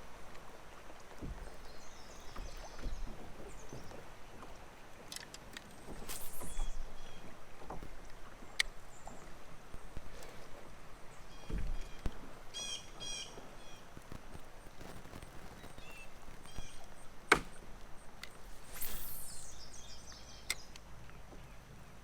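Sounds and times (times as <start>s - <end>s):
outdoor background hiss: 4.6s - 22.0s
falling swish: 6.0s - 6.8s, 18.4s - 19.7s
small birds chirping: 18.3s - 21.7s.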